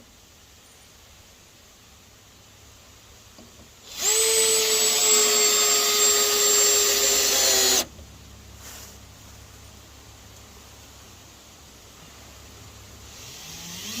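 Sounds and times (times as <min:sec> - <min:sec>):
electric power tool whining: 0:03.8 - 0:07.9, 0:13.1 - 0:14.0.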